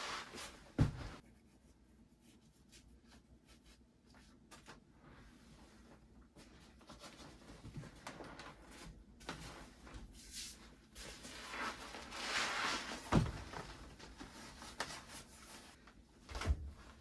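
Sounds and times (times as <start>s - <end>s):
rustling and handling noises: 0.0s - 17.0s
thump: 0.8s - 1.2s.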